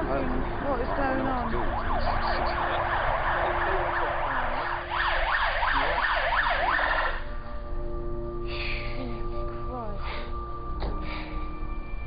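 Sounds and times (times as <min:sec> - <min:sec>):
ambulance siren yelping: 0:00.0 - 0:07.9.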